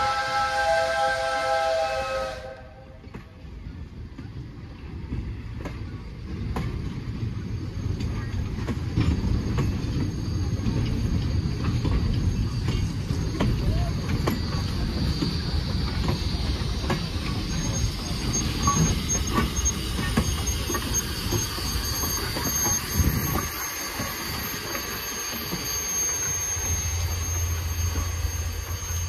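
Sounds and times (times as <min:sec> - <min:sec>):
steam locomotive low hum: 0:00.0 - 0:29.0
steel wheels rumbling and clicking: 0:03.0 - 0:29.0
thin high squeal: 0:09.2 - 0:29.0.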